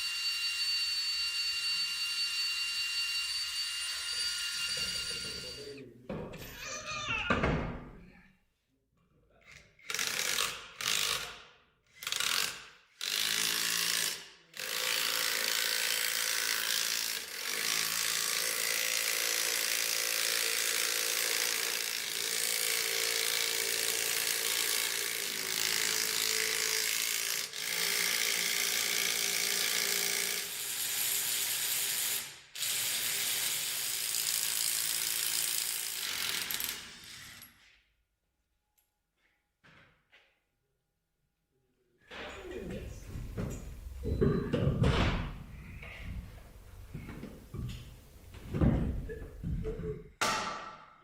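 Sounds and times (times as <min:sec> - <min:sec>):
workshop tool running: 0:00.0 - 0:05.7, 0:12.0 - 0:37.6.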